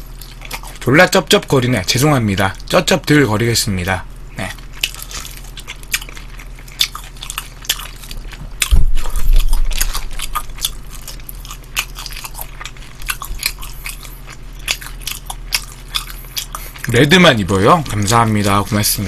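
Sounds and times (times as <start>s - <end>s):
crunchy chewing and lip-smacking: 0.0s - 0.9s, 4.4s - 17.2s
low thump: 8.7s - 9.6s.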